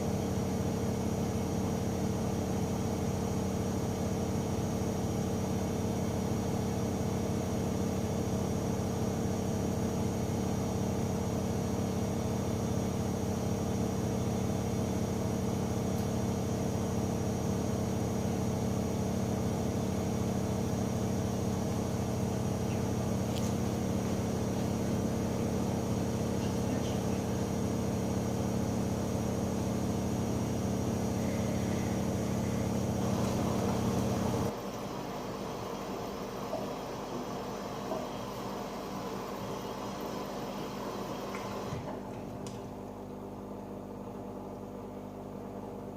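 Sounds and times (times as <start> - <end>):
washing machine motor hum: 0.0 - 45.9
thin high whine: 15.5 - 41.3.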